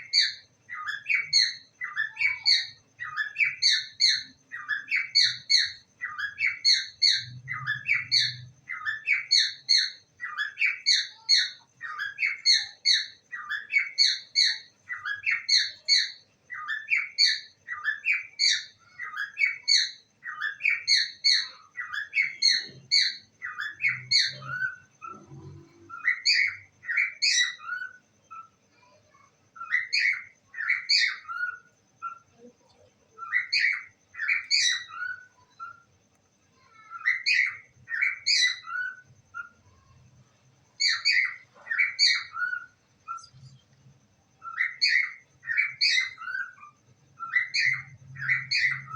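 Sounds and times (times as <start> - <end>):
parrot chirping: 0.0 - 48.9.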